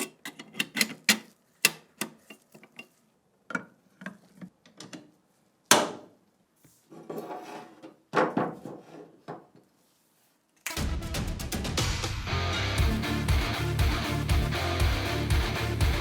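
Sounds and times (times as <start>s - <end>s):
metal slide scraping: 7.0s - 7.8s
music: 10.7s - 16.0s.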